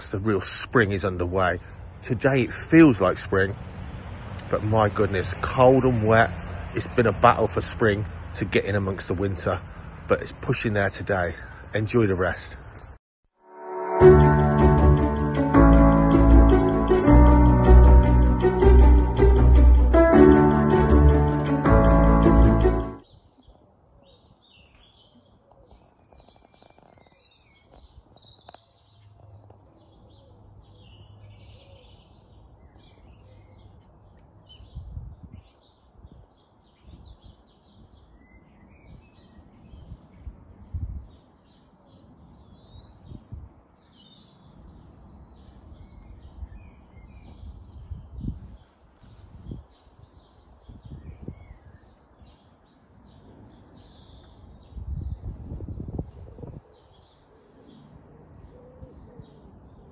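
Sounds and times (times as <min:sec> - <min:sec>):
wild birds singing and calling: 0:04.4 - 0:13.0, 0:23.0 - 0:59.9
background music: 0:13.4 - 0:23.0.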